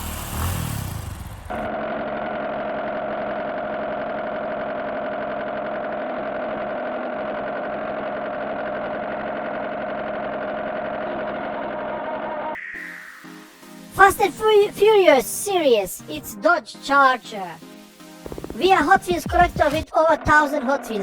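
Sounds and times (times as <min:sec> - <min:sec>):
car engine idling: 0:00.0 - 0:12.4.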